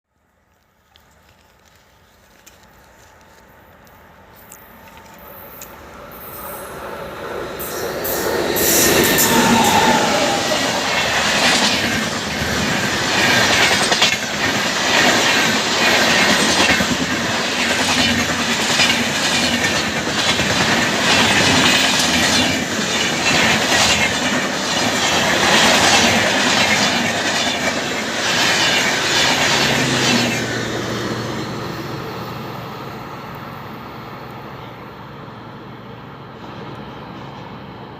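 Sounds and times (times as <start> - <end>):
train wheels clattering over rail joints: 11.4 - 30.2.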